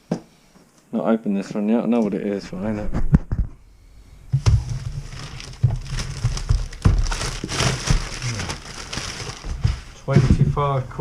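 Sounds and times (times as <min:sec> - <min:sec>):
plastic packaging crinkling: 0:04.4 - 0:10.0.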